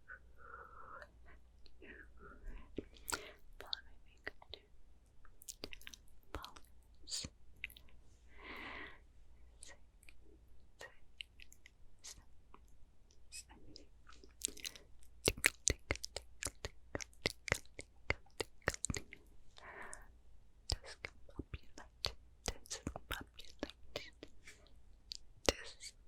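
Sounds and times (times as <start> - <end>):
wet mouth clicks and smacks: 2.8 - 4.5, 5.4 - 7.8, 14.1 - 19.2, 20.7 - 24.2.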